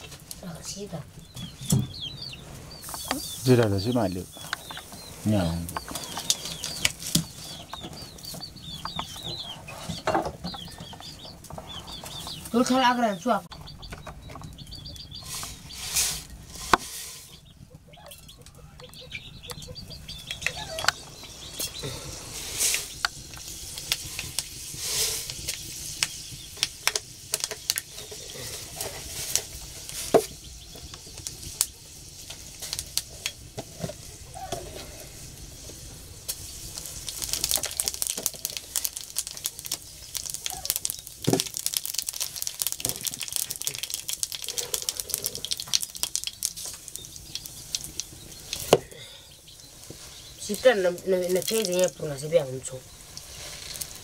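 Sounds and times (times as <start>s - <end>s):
spice seeds popping in hot oil: 2.8s - 9.5s, 18.2s - 34.2s, 35.2s - 54.0s.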